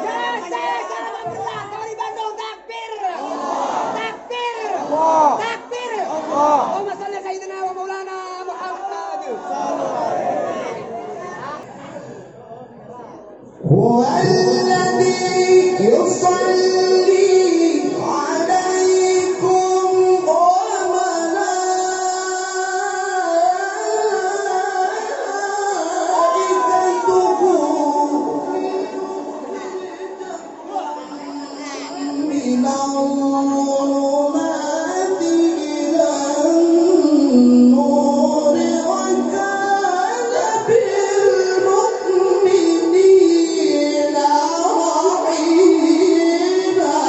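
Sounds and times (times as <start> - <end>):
person chanting melodic recitation: 13.6 - 47.0.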